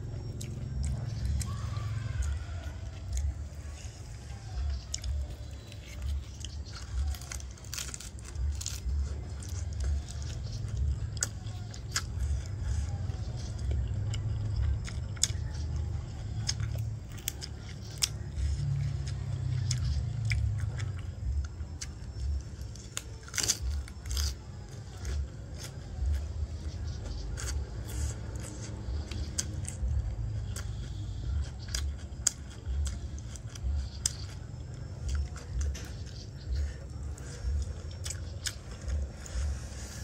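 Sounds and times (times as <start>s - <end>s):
person chewing food: 0.0s - 40.0s.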